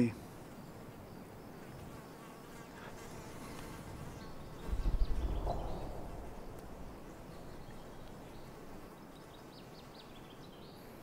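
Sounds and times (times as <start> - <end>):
flies buzzing: 0.0 - 11.0
low fluttering rumble: 4.4 - 9.0.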